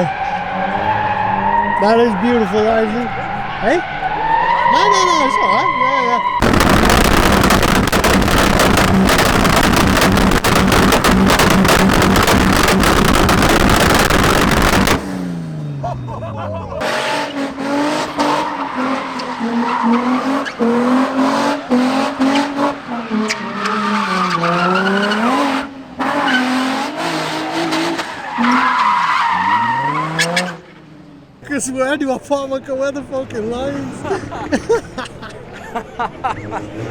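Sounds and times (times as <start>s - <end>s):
tyres squealing and skidding: 0.0s - 15.2s, 15.9s - 31.0s
car engine revving: 0.0s - 15.9s, 16.8s - 28.2s.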